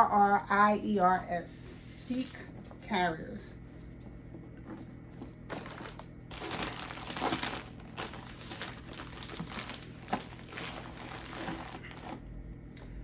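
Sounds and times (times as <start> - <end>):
packaging crinkling and rustling: 5.2 - 12.3.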